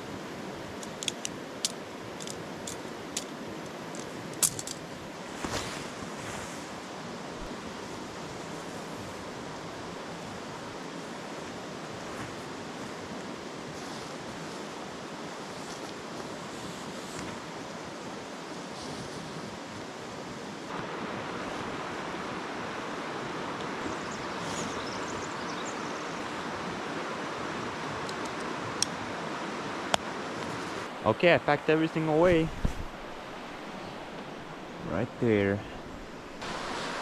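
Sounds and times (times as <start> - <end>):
sharp clicks: 0.8 - 4.8
river rushing: 19.6 - 37.0.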